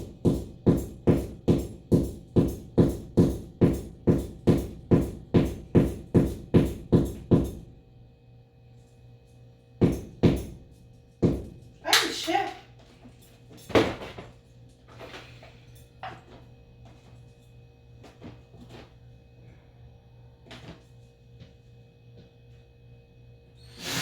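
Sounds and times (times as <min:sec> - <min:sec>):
hammer striking wall: 0:00.0 - 0:07.6, 0:09.8 - 0:10.6, 0:11.2 - 0:11.6.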